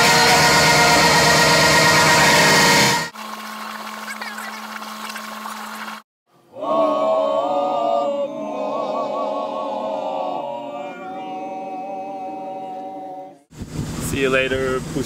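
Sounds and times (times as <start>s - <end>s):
voices singing a cappella chant: 0.0s - 3.1s, 6.4s - 13.5s.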